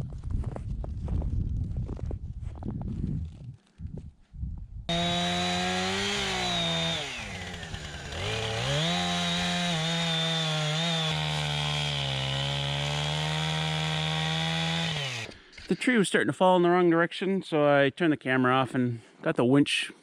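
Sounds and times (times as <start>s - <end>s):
chainsaw cutting wood: 4.9s - 15.7s.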